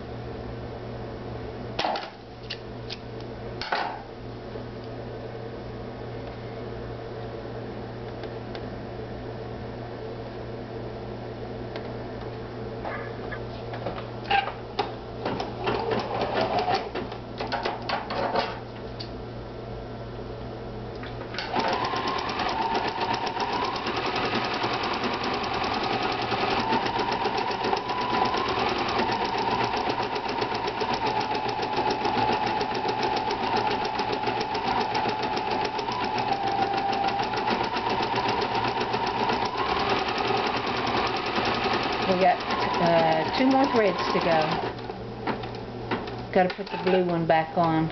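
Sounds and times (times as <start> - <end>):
sewing machine stitching: 15.3 - 17.0, 21.4 - 44.9, 46.4 - 47.2.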